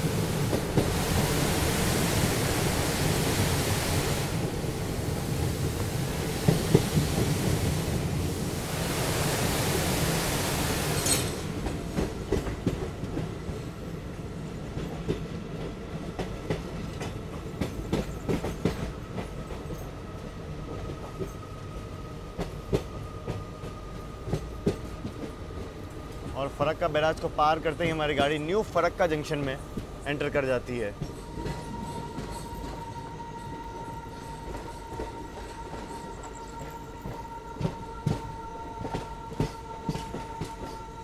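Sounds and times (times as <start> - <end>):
train rushing noise: 0.0 - 41.0.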